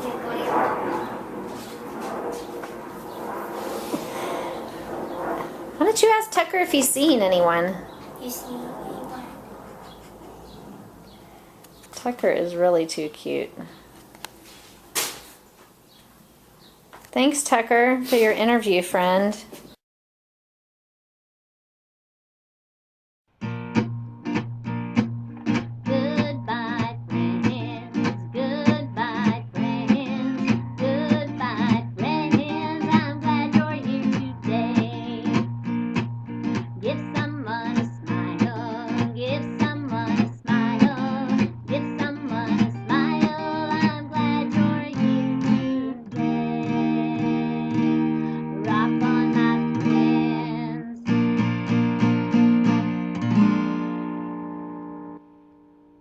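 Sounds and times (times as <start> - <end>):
acoustic guitar music: 0.0 - 1.6, 23.4 - 56.0.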